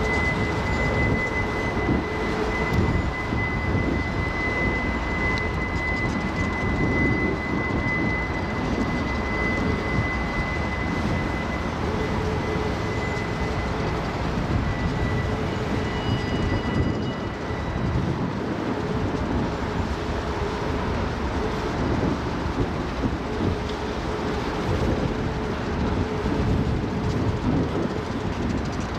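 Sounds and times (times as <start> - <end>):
train wheels rumbling on rail: 0.0 - 28.9
thin high steady tone: 7.7 - 18.7.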